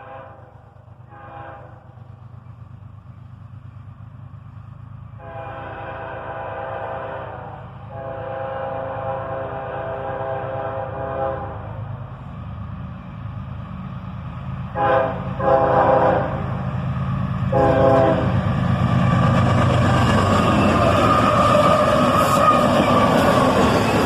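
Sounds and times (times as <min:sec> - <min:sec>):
locomotive air horn blasts: 0:00.0 - 0:01.9, 0:05.2 - 0:11.8, 0:14.7 - 0:16.5, 0:17.5 - 0:18.4
train locomotive and wheel noise: 0:00.0 - 0:24.0.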